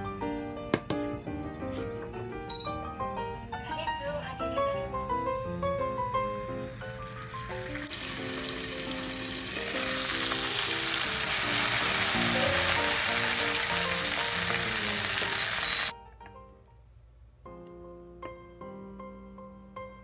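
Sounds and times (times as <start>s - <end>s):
meat sizzling in a frying pan: 7.2s - 16.0s.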